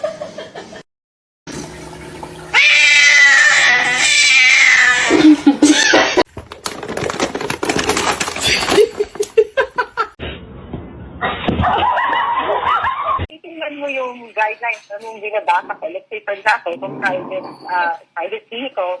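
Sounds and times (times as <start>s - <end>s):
cat yowling: 2.5s - 6.2s.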